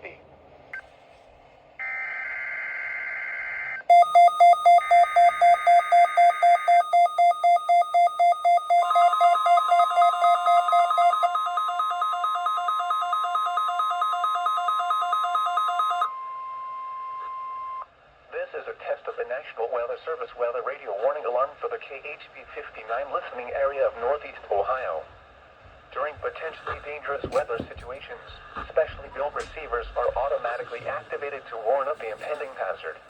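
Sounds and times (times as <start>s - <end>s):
rapid alarm beeping: 3.9s - 16.1s
screeching digital header tones: 3.9s - 16.1s
steady warning alarm tone: 3.9s - 16.1s.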